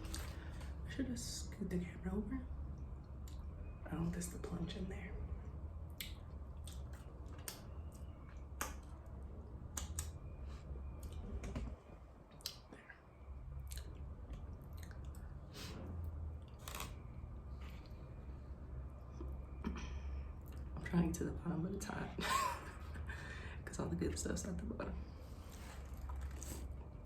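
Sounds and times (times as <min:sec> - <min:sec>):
low steady hum: 0:00.0 - 0:27.0
chewing and mouth smacking: 0:05.9 - 0:09.0, 0:13.6 - 0:15.4, 0:25.5 - 0:26.9.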